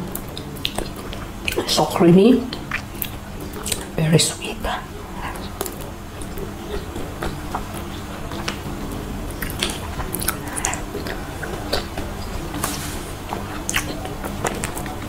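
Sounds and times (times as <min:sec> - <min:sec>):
wet squishy chewing: 0:00.1 - 0:01.9, 0:02.5 - 0:04.0, 0:04.8 - 0:15.0
lip smacks and clicks: 0:00.2 - 0:01.7, 0:02.5 - 0:03.9, 0:09.4 - 0:15.0.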